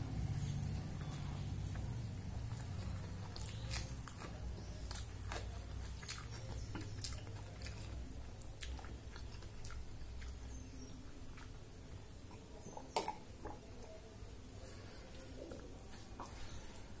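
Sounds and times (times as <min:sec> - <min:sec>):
steady low hum: 0:00.0 - 0:17.0
chewing with wet mouth smacks: 0:00.2 - 0:11.7.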